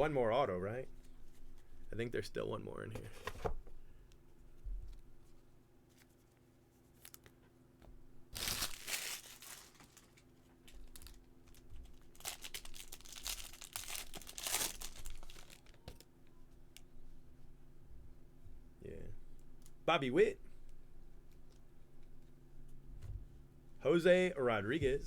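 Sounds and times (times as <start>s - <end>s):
foil wrapper tearing and crinkling: 8.3s - 16.0s.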